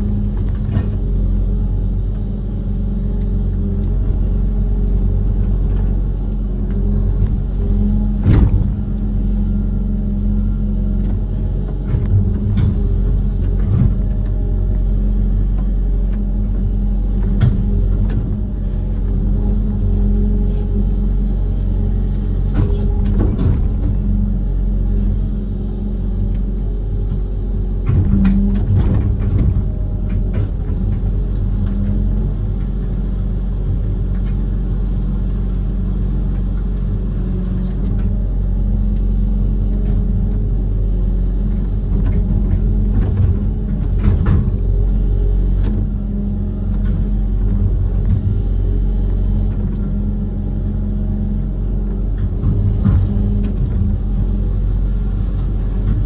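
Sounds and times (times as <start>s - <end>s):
diesel engine running: 0.0s - 56.0s
short machine knocks: 7.1s - 9.2s, 22.5s - 24.0s.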